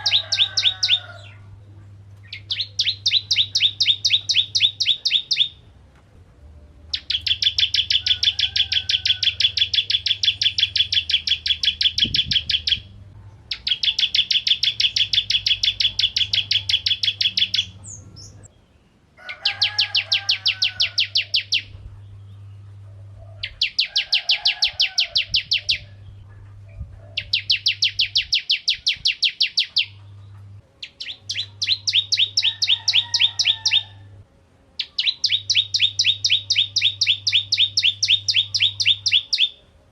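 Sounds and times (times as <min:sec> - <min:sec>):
faint low hum: 0:00.0 - 0:39.9
bird singing sharp chirps: 0:06.9 - 0:12.9.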